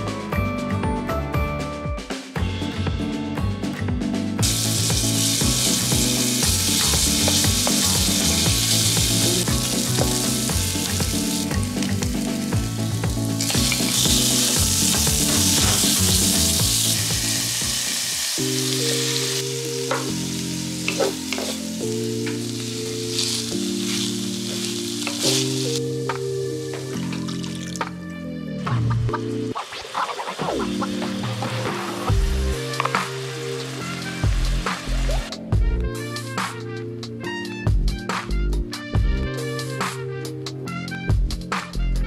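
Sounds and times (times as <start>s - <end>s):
meat sizzling in a frying pan: 4.4s - 27.8s, 29.6s - 35.2s.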